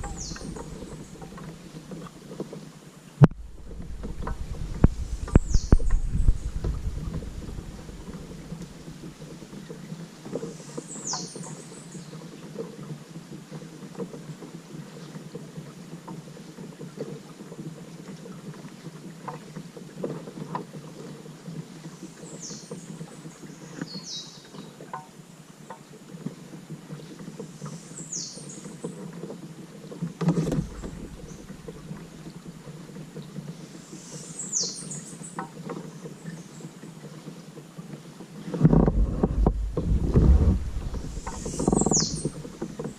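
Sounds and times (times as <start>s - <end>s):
bird chirping: 0.0s - 1.2s, 5.3s - 6.6s, 40.9s - 42.5s
paddle splashes: 0.0s - 42.9s
water lapping around a kayak: 0.0s - 42.9s
low thump: 30.4s - 31.8s, 38.6s - 42.8s.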